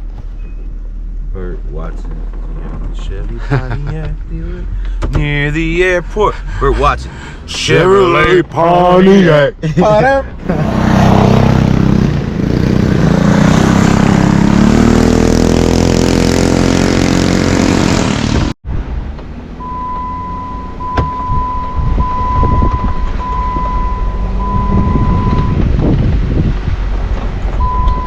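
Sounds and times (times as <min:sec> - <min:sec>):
engine rumble: 0:00.0 - 0:28.0
high beeping tone: 0:19.6 - 0:25.6, 0:27.6 - 0:28.0.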